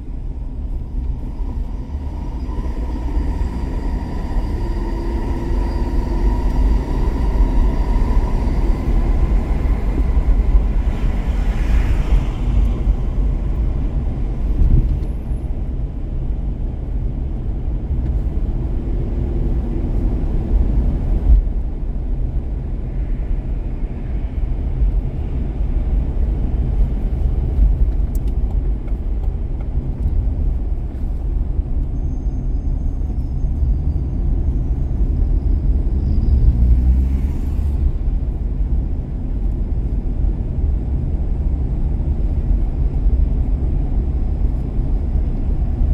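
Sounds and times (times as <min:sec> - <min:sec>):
road and engine rumble: 0:00.0 - 0:45.9
faint high whine: 0:00.7 - 0:11.8.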